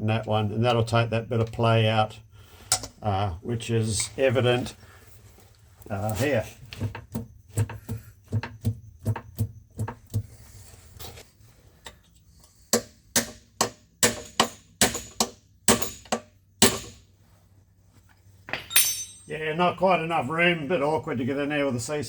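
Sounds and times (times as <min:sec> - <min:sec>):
regular metal clunk: 0:02.6 - 0:03.0, 0:18.4 - 0:19.3
sharp metal clinks: 0:18.5 - 0:19.4.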